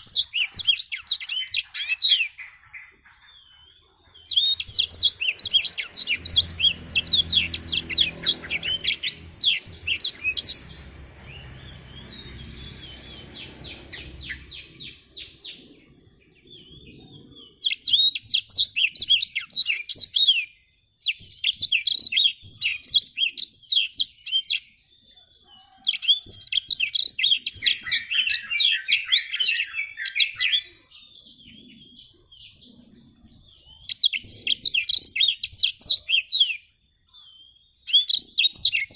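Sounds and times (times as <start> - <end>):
canary high twittering song: 0.0 - 38.9.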